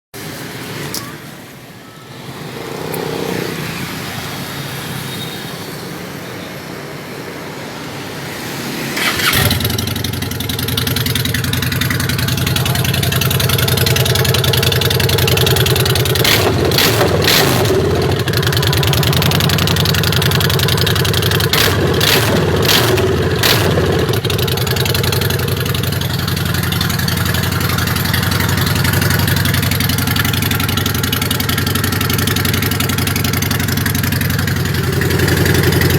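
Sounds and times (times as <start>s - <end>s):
motorcycle engine starting and idling: 8.9s - 35.9s.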